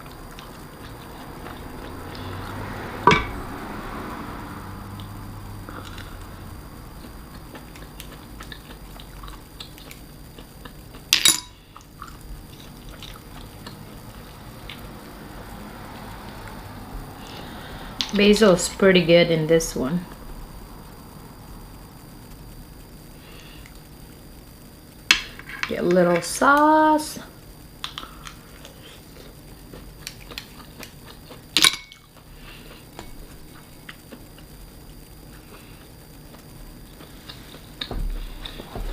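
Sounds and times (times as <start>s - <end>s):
wet eating mouth sounds: 0.0s - 2.6s, 6.9s - 14.9s.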